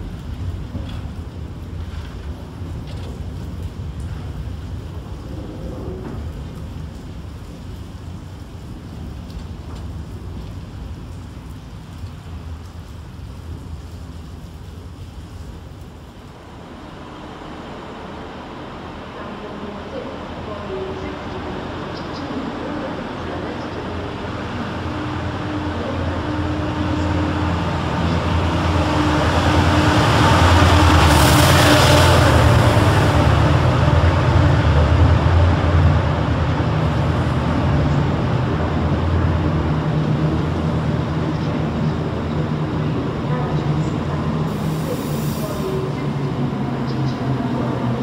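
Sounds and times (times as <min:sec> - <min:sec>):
train rumbling past: 0:16.1 - 0:48.0.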